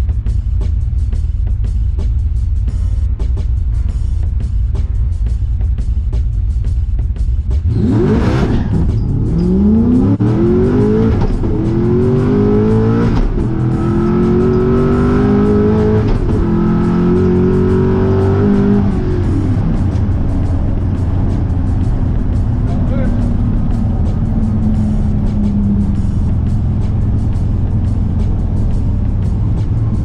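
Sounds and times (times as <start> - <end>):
car engine accelerating hard: 7.5 - 30.0.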